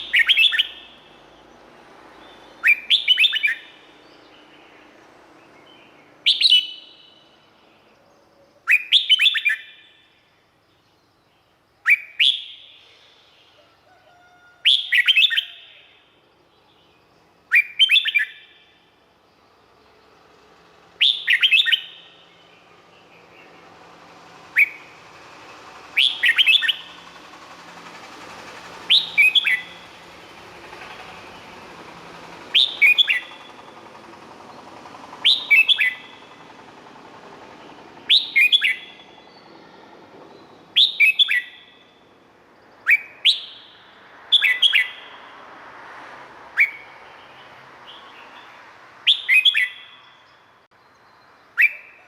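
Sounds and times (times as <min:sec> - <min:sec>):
bird singing whistled notes: 0:00.0 - 0:13.6, 0:14.6 - 0:18.8, 0:21.0 - 0:23.8, 0:24.5 - 0:25.0, 0:25.9 - 0:27.0, 0:28.9 - 0:29.9, 0:32.5 - 0:33.7, 0:35.2 - 0:36.5, 0:37.6 - 0:45.3, 0:46.6 - 0:52.0.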